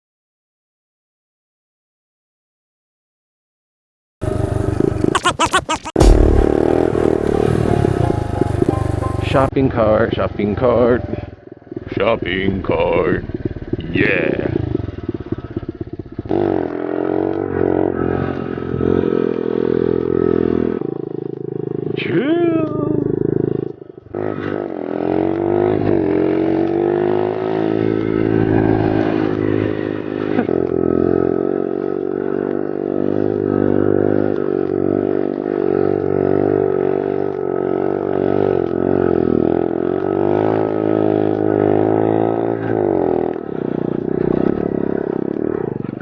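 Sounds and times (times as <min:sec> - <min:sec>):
pit bike engine accelerating: 0:04.2 - 0:09.5, 0:11.0 - 0:21.8, 0:37.6 - 0:46.0.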